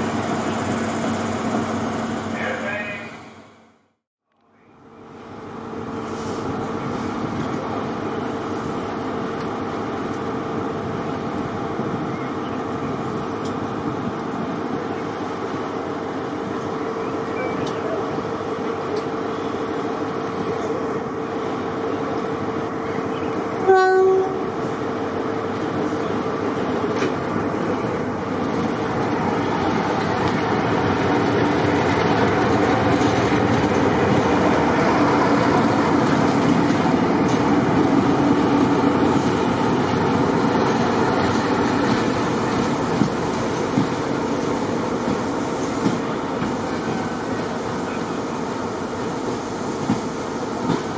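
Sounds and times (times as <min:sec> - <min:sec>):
diesel locomotive running: 0:00.0 - 0:03.9, 0:04.6 - 0:50.9
locomotive horn blast: 0:23.6 - 0:24.5.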